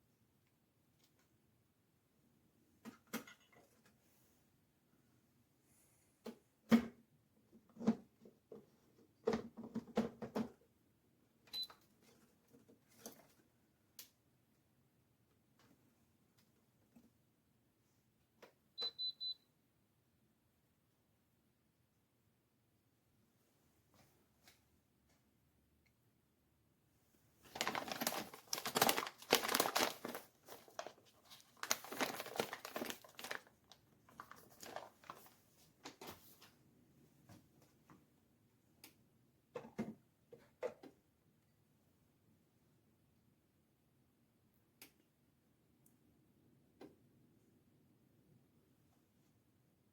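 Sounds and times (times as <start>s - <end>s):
crinkling and rustling: 11.8s - 13.6s, 27.3s - 36.6s.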